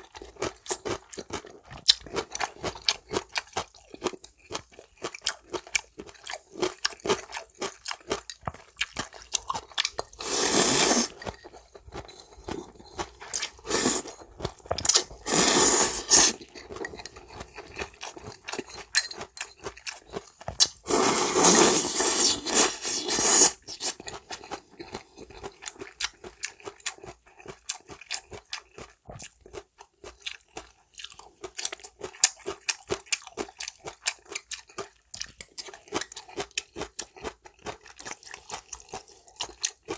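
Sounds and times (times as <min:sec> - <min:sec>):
wet chewing with crunches: 0:00.0 - 0:39.9
slurping noodles: 0:10.0 - 0:11.4, 0:12.0 - 0:14.2, 0:14.8 - 0:16.6, 0:20.6 - 0:24.3.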